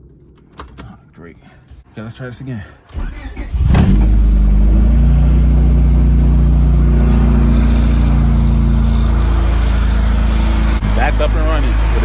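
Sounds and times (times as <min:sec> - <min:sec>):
car engine idling: 0:03.9 - 0:12.0.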